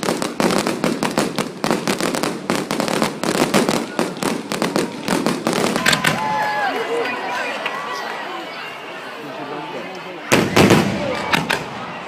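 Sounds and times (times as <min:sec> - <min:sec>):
fireworks crackling and banging: 0:00.0 - 0:07.8, 0:09.9 - 0:12.0.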